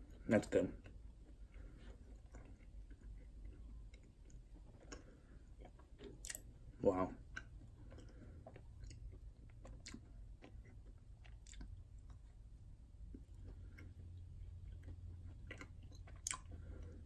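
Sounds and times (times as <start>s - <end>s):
soft chewing: 0.0s - 17.0s.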